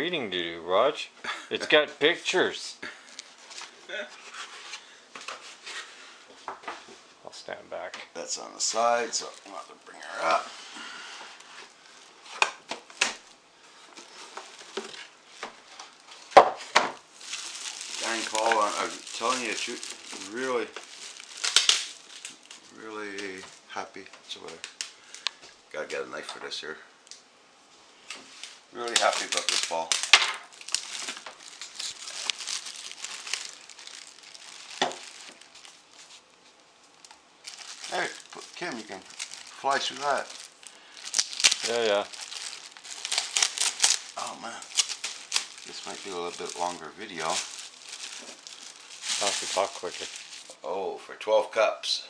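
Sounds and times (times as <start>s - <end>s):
plastic wrap and cardboard crinkling: 1.6s - 6.8s, 7.8s - 26.2s, 28.0s - 50.8s
packaging cracking: 17.1s - 23.5s, 28.4s - 36.3s, 36.9s - 50.6s.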